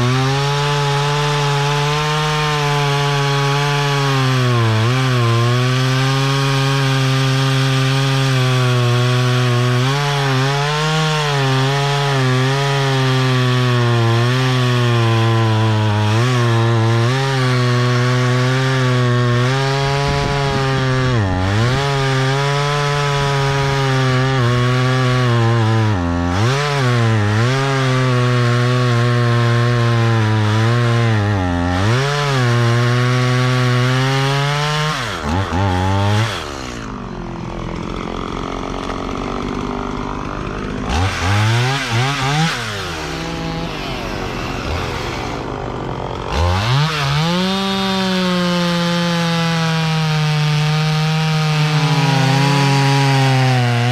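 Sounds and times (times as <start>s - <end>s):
chainsaw cutting log: 0.0s - 53.9s.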